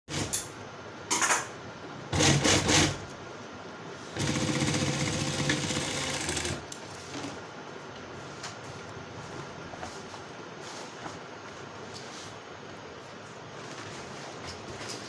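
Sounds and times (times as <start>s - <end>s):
sewing machine stitching: 2.1s - 3.0s, 4.2s - 6.7s.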